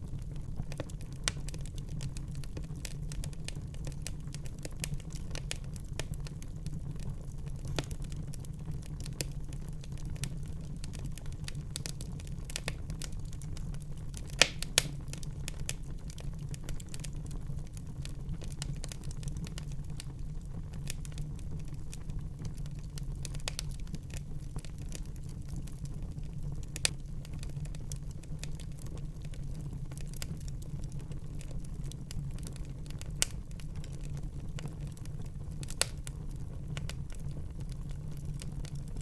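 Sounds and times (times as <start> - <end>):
wood fire crackling: 0.0 - 39.0
fire pops: 7.6 - 8.2, 11.2 - 15.8, 35.6 - 37.2.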